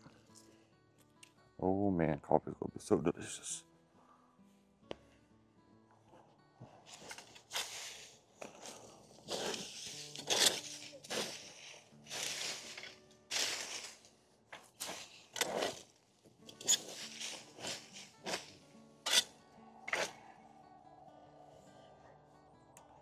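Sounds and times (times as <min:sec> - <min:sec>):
faint guitar music: 0:00.0 - 0:23.0
rough scraping noises: 0:06.1 - 0:20.6.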